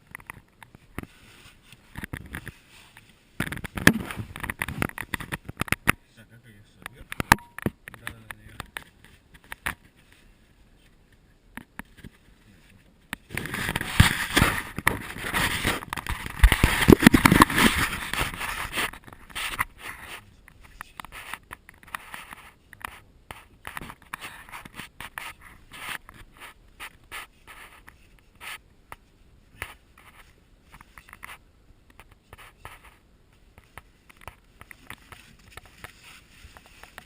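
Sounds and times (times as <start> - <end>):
rough scraping and scuffing: 0.4 - 5.4, 11.9 - 28.6, 32.2 - 37.0.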